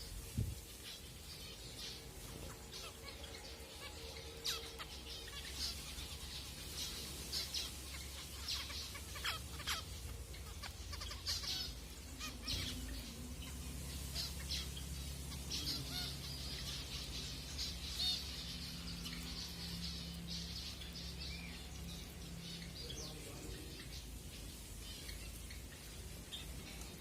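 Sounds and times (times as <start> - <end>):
finches giving nasal calls: 3.8 - 21.5.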